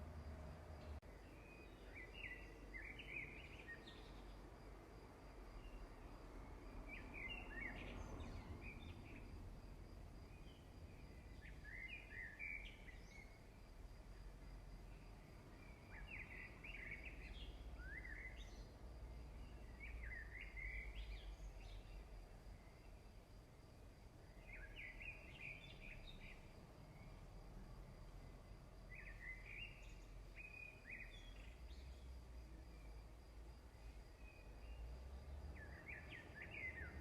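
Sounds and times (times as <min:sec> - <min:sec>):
faint bird chirping: 0:00.0 - 0:37.0.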